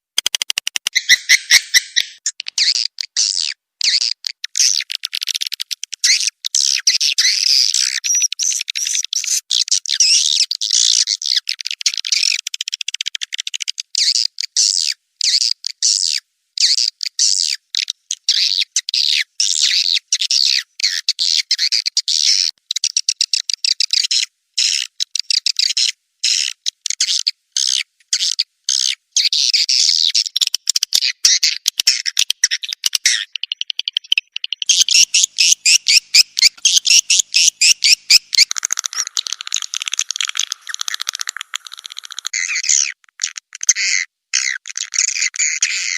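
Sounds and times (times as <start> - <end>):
swiftlet chirps and twitters: 0.2 - 12.5, 31.9 - 43.0.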